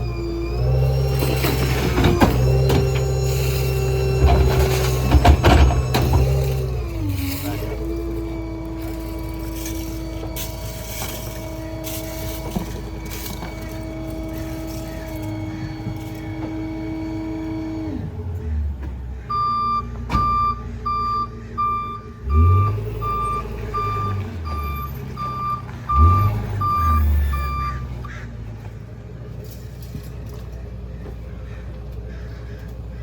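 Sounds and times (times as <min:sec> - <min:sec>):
truck engine revving: 0:00.0 - 0:28.8
garbage truck mechanical whine: 0:00.0 - 0:33.0
backup alarm beeping: 0:19.3 - 0:28.0.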